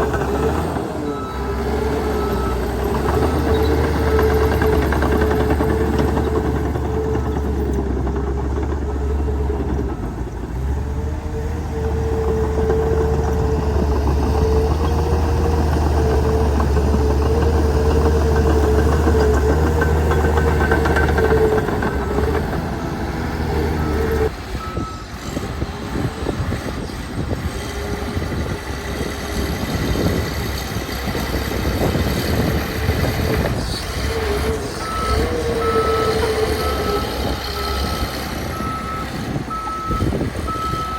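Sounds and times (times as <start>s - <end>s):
diesel engine working under load: 0.0s - 40.9s
reversing alarm beeping: 23.6s - 25.2s, 34.7s - 40.9s.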